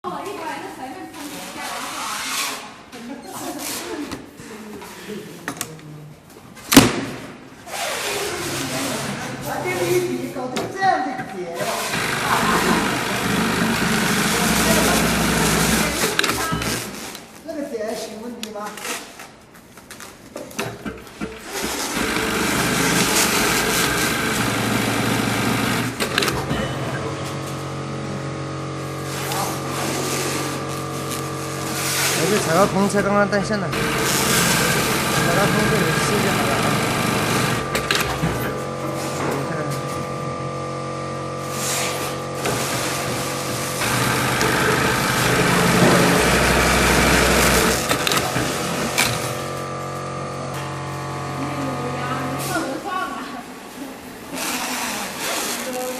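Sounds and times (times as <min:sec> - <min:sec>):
sewing machine running: 0:11.6 - 0:17.1, 0:20.8 - 0:52.7.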